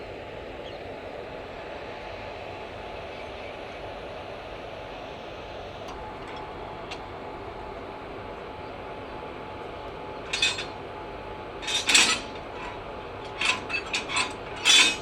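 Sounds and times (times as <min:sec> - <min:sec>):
background hum: 0:04.4 - 0:15.0
metal clanking and scraping: 0:05.9 - 0:07.1, 0:10.2 - 0:10.9, 0:11.6 - 0:15.0.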